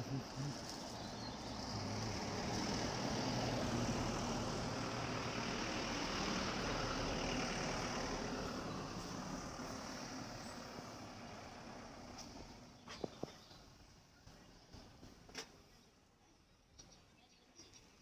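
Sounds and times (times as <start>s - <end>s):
road and wind rush: 0.0s - 13.6s
low engine hum: 0.0s - 15.8s.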